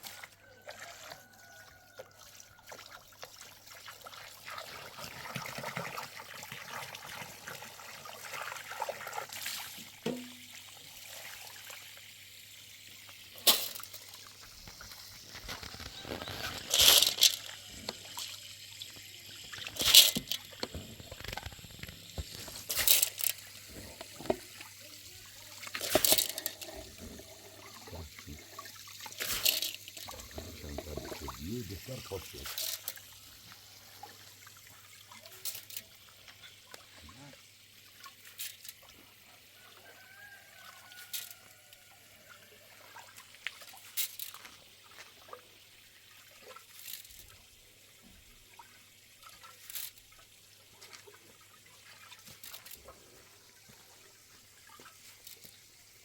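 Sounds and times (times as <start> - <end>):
water trickling: 0.0 - 56.0
water splashing: 12.9 - 45.6, 48.4 - 56.0.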